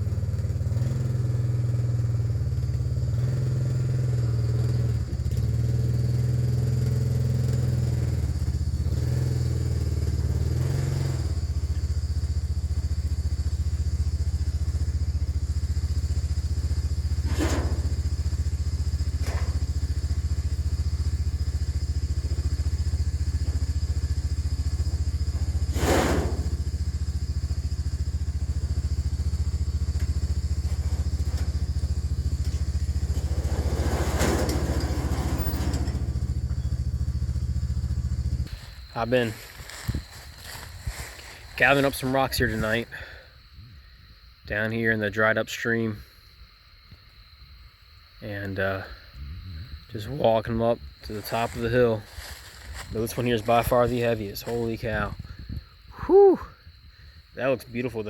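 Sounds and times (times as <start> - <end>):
four-wheeler engine running: 0.0 - 43.2, 49.2 - 56.5
short clatters: 32.4 - 36.2.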